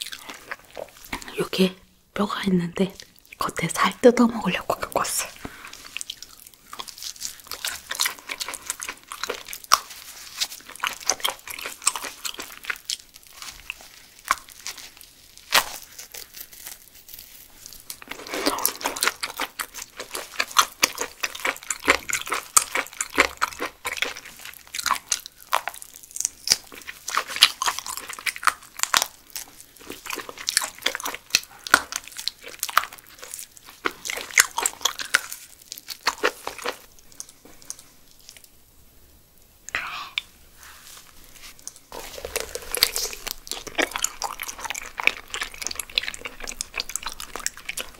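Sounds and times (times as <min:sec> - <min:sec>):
close chewing and biting: 0:00.0 - 0:01.3, 0:05.4 - 0:38.5, 0:41.5 - 0:47.9
wet mouth sounds: 0:41.9 - 0:47.9.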